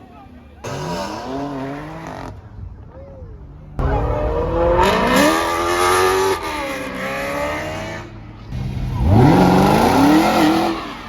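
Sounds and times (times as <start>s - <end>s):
car engine accelerating hard: 3.8s - 11.0s.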